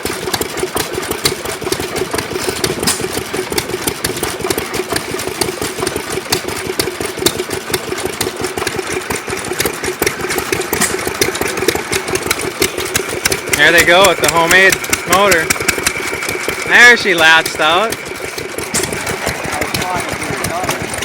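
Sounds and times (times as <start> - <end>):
gas engine firing clicks: 2.5 - 3.3, 10.4 - 16.8, 17.4 - 21.0.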